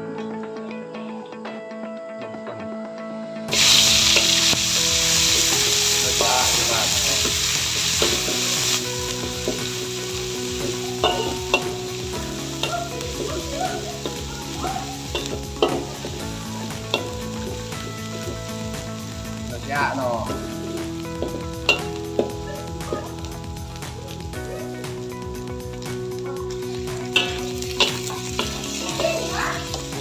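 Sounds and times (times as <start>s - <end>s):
food sizzling in hot oil: 3.5s - 30.0s
metal ladle scraping a wok: 27.2s - 29.9s.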